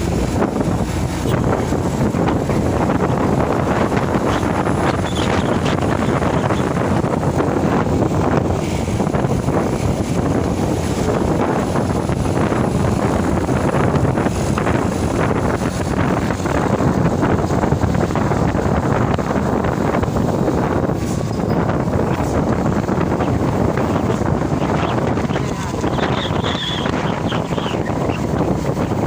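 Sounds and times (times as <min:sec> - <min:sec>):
road noise: 0:00.0 - 0:29.0
truck engine: 0:00.0 - 0:29.0
wind buffeting microphone: 0:00.0 - 0:29.0.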